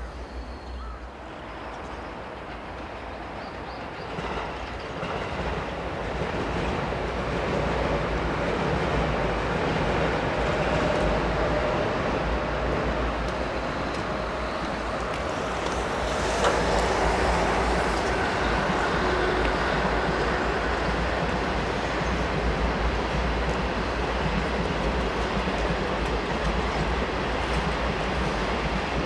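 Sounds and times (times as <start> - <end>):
freight train rumbling past: 0.0 - 29.0.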